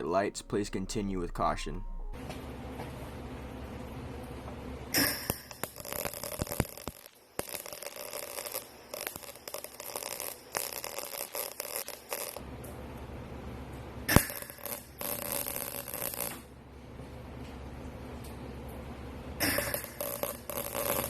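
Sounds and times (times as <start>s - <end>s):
electric welding arc crackling: 4.9s - 12.4s, 14.1s - 16.5s, 19.4s - 21.0s.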